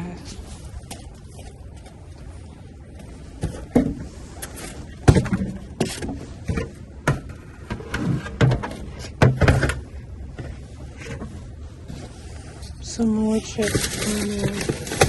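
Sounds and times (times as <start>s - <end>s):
items knocking and clunking: 3.4s - 11.4s, 13.6s - 15.0s.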